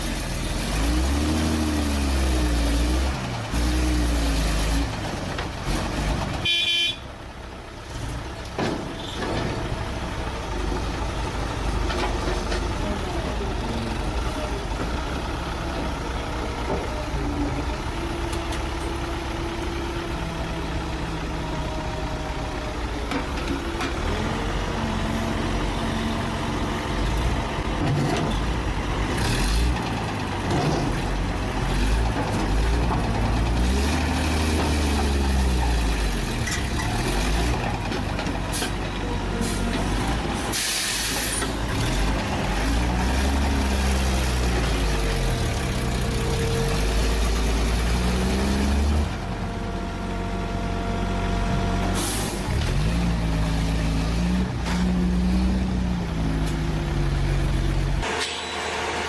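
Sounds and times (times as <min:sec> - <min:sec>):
truck diesel engines revving: 0:00.0 - 0:06.9, 0:07.8 - 0:59.0
air brake hiss: 0:40.5 - 0:41.4, 0:52.0 - 0:52.4.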